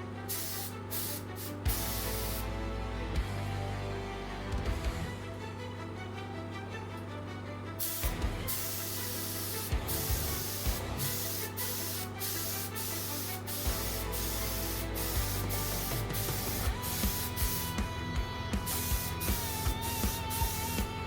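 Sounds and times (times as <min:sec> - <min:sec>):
spray gun hissing: 0:00.3 - 0:02.5, 0:07.8 - 0:17.8, 0:18.6 - 0:20.8.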